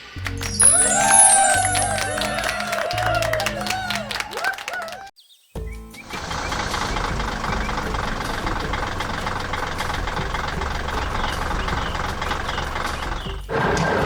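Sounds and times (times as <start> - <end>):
heavy diesel machinery engine: 6.1 - 14.0.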